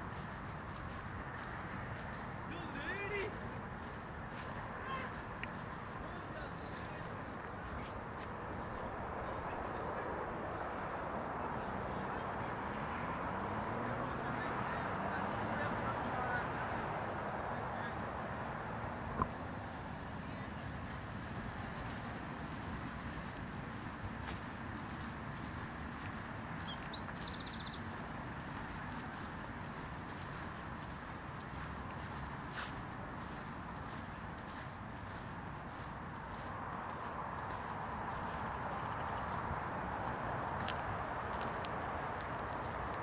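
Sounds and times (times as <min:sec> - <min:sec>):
songbird singing: 0:00.0 - 0:13.0, 0:21.8 - 0:43.0
road traffic: 0:00.0 - 0:43.0
vehicle engine hum: 0:00.0 - 0:43.0.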